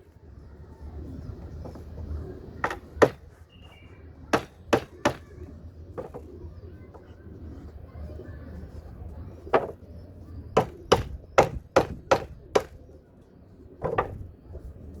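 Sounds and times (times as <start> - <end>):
hammer blows on timber: 4.3 - 5.3, 10.6 - 12.8.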